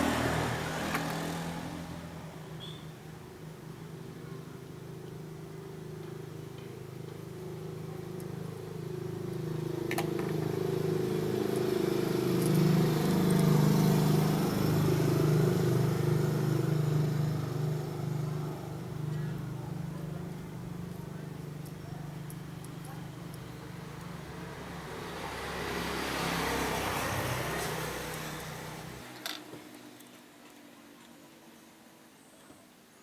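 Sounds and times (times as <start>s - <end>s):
vehicle engine passing by: 0.0s - 2.6s, 7.5s - 29.8s.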